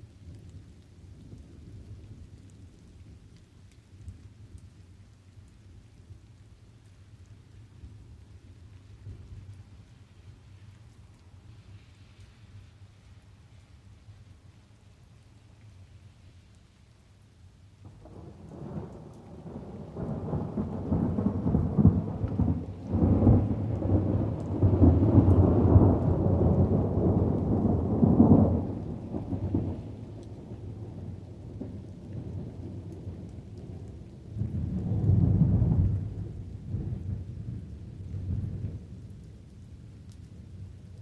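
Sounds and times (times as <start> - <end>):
steady rain: 0.0 - 41.0
thunder rumbling: 17.8 - 39.0.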